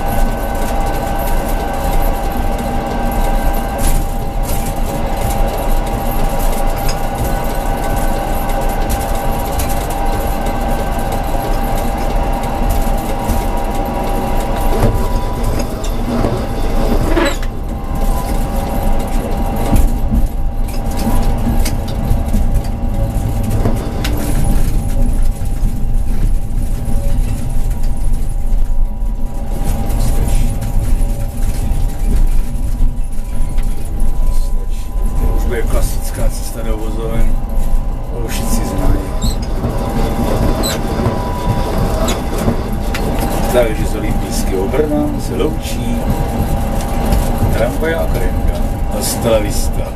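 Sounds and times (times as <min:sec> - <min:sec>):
constant whine: 0:00.0 - 0:49.9
tram wheels rumbling on rails: 0:00.0 - 0:49.9
rising squeal: 0:12.9 - 0:20.6, 0:32.9 - 0:45.8.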